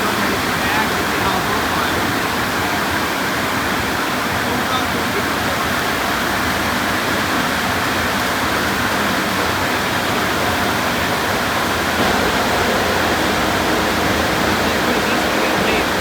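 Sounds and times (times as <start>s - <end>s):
car wash machinery: 0.0s - 16.0s
water spray rushing: 11.7s - 16.0s.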